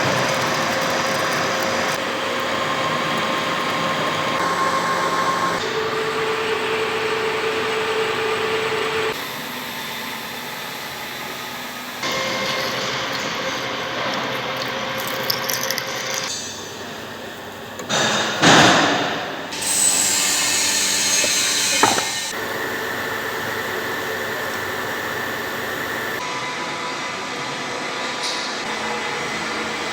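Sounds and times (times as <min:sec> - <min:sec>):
machine tools cutting steel: 0:19.5 - 0:22.6
machine hum: 0:19.5 - 0:26.2.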